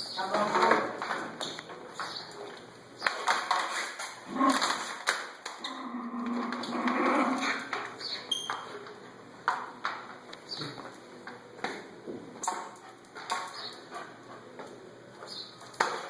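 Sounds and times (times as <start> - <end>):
dog barking and growling: 4.2 - 5.0, 5.6 - 7.7.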